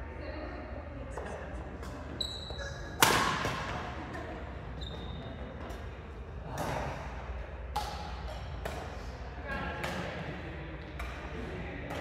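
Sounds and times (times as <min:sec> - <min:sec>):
shoe squeak: 0:02.1 - 0:03.0, 0:04.8 - 0:05.5
racket hitting shuttlecock: 0:02.9 - 0:03.9, 0:07.7 - 0:12.0.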